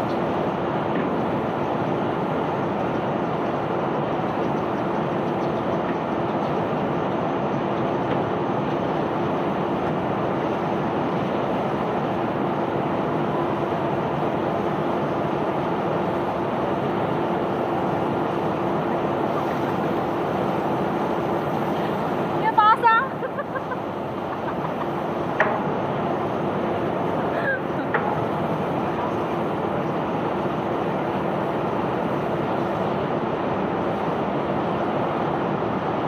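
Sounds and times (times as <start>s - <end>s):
unloading machinery rumbling: 7.9s - 33.2s.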